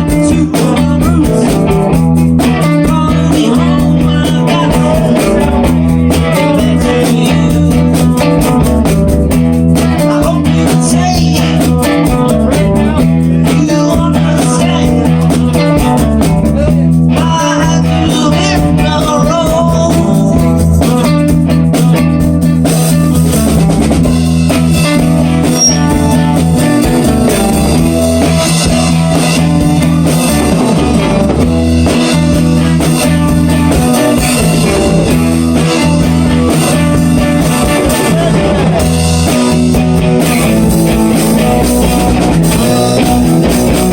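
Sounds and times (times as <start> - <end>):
bass guitar: 0.0 - 43.9
drum kit: 0.0 - 43.9
electric guitar blues-rock riff: 0.0 - 43.9
lead guitar bending notes: 19.5 - 43.9.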